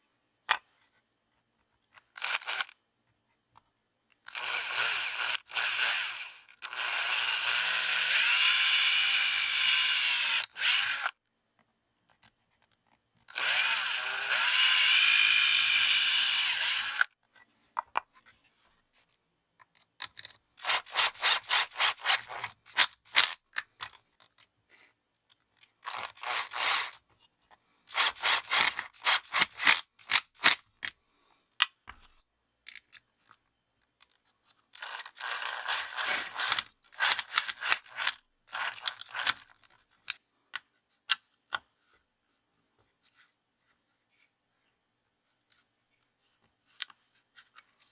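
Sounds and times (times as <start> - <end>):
handheld power tool running: 4.3 - 11.1, 13.3 - 17.1, 20.6 - 23.4, 25.9 - 27.0, 27.9 - 29.8, 35.2 - 39.3
rubbing or scraping strokes: 20.6 - 22.6, 27.9 - 29.8.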